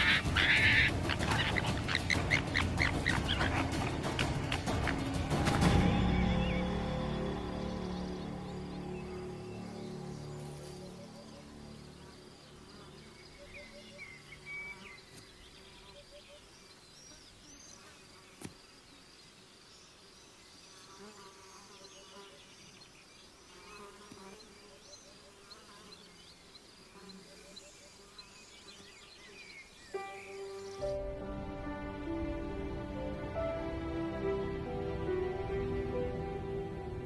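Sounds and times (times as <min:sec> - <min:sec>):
music: 0:00.0 - 0:13.8, 0:29.9 - 0:37.0
bird chirps and trills: 0:00.0 - 0:18.0
buzzing insects: 0:00.0 - 0:37.0.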